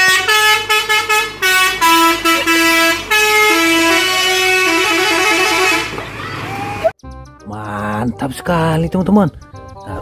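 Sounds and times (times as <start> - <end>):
musical air horn playing tune: 0.0 - 5.9.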